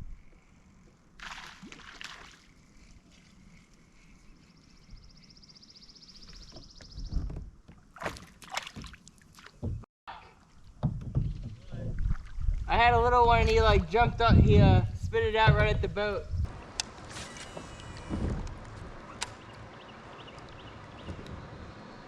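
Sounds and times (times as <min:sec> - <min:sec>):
kayak paddle splashing in water: 0:01.2 - 0:02.6, 0:07.9 - 0:09.6.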